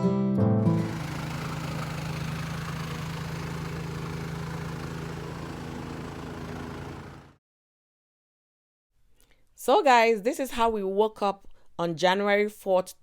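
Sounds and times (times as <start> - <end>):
snowblower engine running: 0.7 - 7.4.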